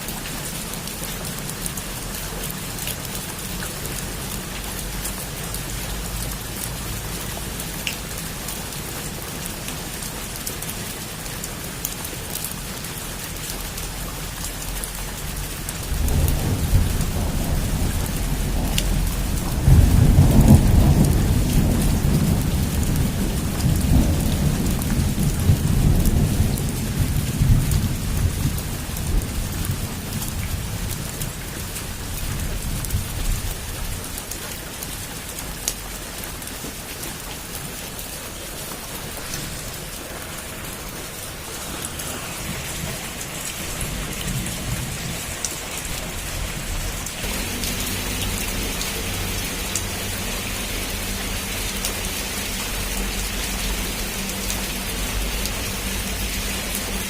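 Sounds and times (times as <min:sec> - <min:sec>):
heavy rain falling: 0:00.0 - 0:57.0
thunder rumbling: 0:15.3 - 0:34.1, 0:38.8 - 0:57.0.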